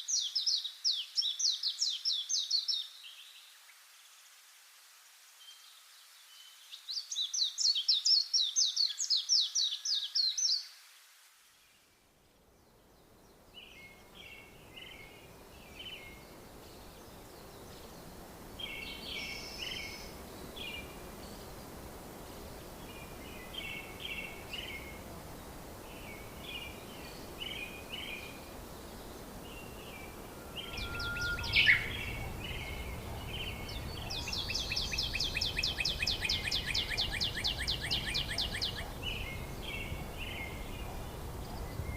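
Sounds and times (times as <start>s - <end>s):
steady outdoor hiss: 0.0s - 41.9s
birds singing: 12.6s - 41.9s
sharp loud bird call: 30.0s - 32.9s.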